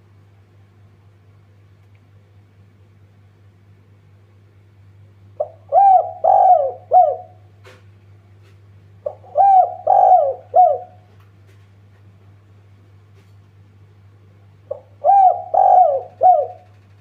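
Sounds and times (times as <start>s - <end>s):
steady low hum: 0.0s - 17.0s
dove cooing: 5.4s - 7.5s, 9.0s - 11.1s, 14.7s - 16.9s.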